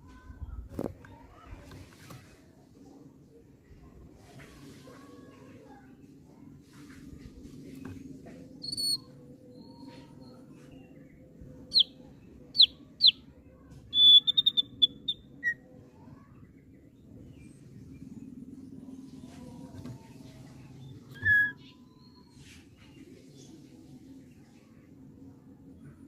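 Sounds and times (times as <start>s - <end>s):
faint low hum: 0.0s - 26.0s
bird calling: 14.0s - 15.6s, 21.1s - 21.8s.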